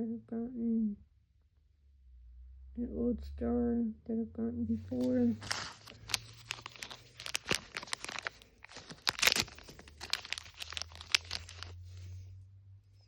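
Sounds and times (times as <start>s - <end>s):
plastic packaging crinkling: 4.8s - 11.9s.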